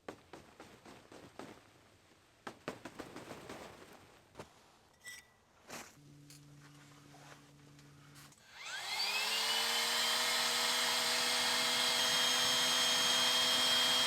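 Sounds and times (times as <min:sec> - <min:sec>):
electric motor whining: 0:08.5 - 0:14.0.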